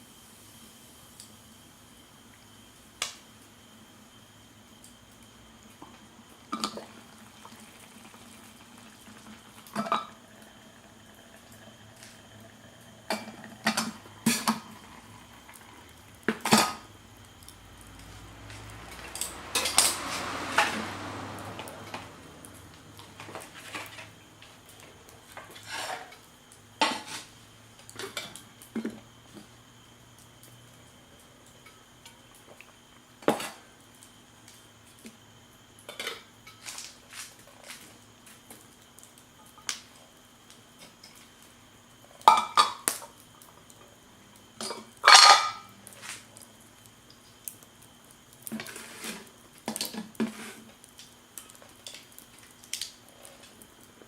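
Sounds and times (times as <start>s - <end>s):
dishes and utensils clinking: 44.6s - 45.6s.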